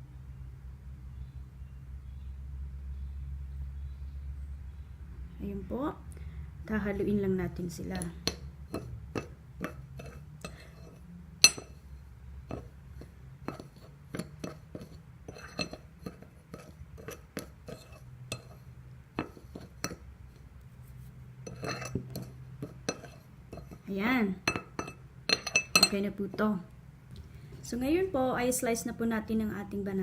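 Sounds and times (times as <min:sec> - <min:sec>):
utensil clinking against bowl: 0:08.0 - 0:11.8, 0:12.5 - 0:20.0, 0:21.4 - 0:23.8, 0:24.4 - 0:26.4.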